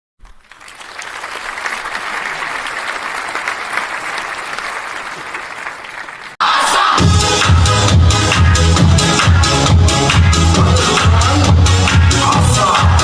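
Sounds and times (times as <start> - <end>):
audience applauding: 0.2 - 6.4
dance beat music: 6.4 - 13.0.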